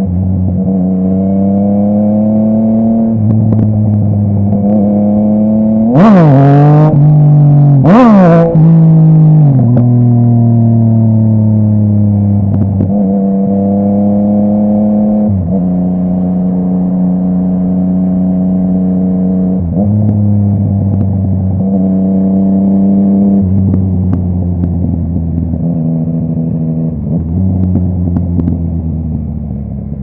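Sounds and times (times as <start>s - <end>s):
motorcycle engine running: 2.9s - 30.0s.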